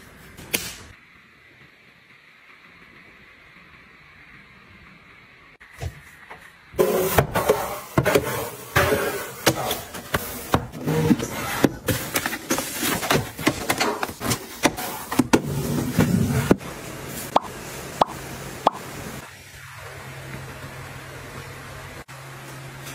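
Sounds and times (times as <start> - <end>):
objects being handled and set down: 5.8 - 16.6.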